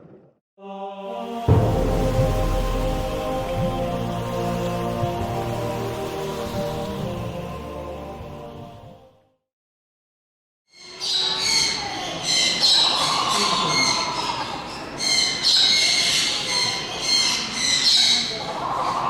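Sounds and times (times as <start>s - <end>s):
birds chirping and squawking: 10.7s - 19.0s.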